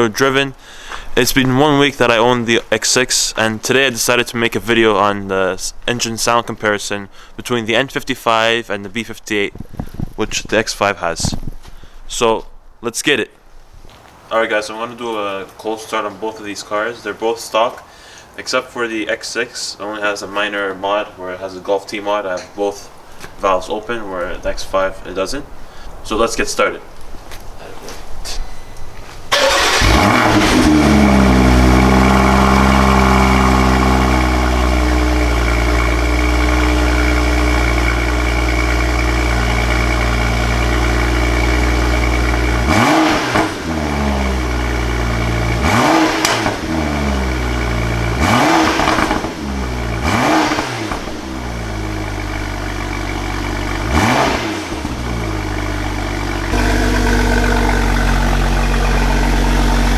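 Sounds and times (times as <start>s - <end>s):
car engine starting and revving: 29.3s - 59.9s.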